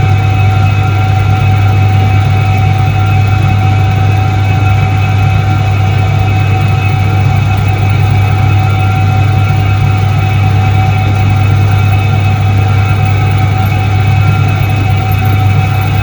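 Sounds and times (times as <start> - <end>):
washing machine humming: 0.0 - 16.0.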